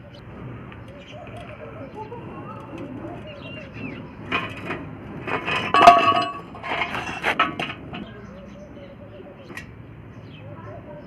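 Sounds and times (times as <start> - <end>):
metallic clinking and clattering: 2.5 - 8.2.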